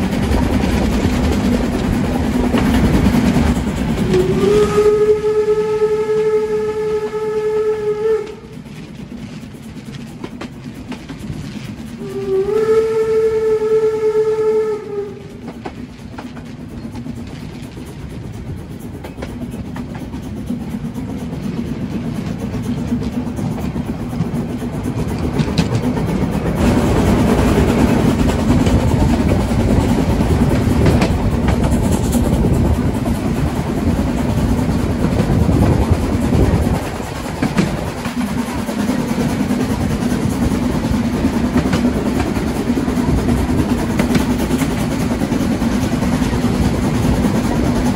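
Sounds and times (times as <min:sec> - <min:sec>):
train rumbling: 0:00.0 - 0:47.9
steam locomotive whistle: 0:03.8 - 0:08.7, 0:11.9 - 0:15.6.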